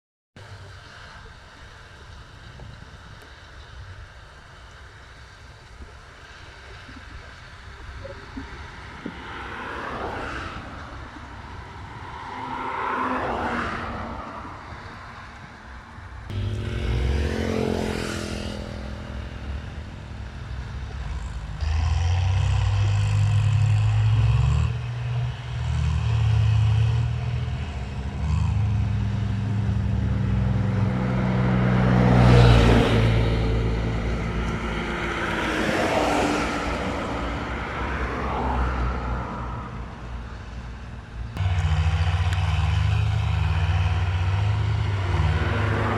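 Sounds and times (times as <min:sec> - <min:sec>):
tractor diesel engine: 0:14.2 - 0:45.9.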